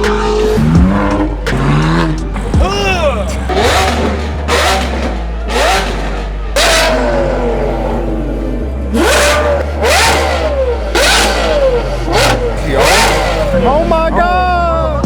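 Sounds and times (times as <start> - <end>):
music: 0.0 - 6.5, 13.6 - 15.0
car engine revving: 0.0 - 15.0.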